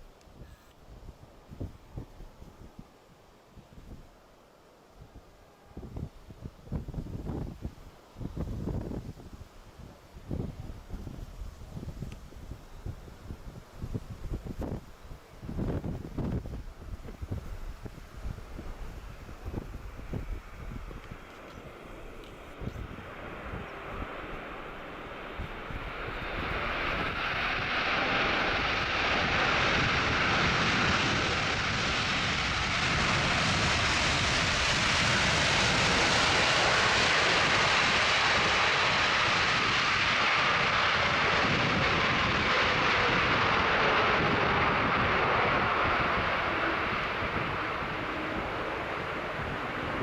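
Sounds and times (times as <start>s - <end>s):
jet plane passing: 18.4s - 50.0s.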